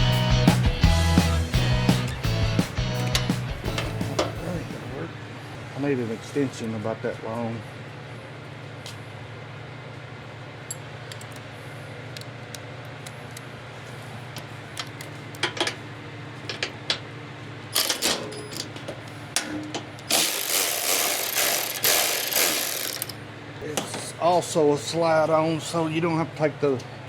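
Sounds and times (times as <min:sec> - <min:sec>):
low shop hum: 0:00.0 - 0:27.0
socket ratchet clicking: 0:20.1 - 0:23.2.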